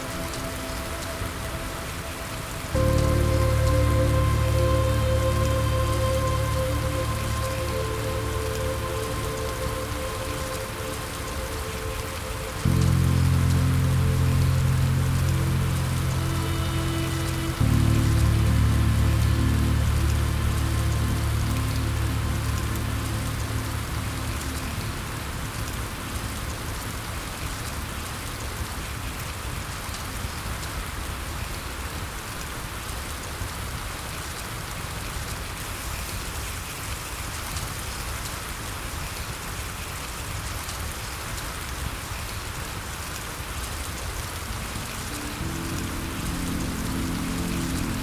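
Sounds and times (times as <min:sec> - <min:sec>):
soft low music: 0:00.0 - 0:29.8, 0:44.4 - 0:48.0
steady rain falling: 0:00.0 - 0:48.0.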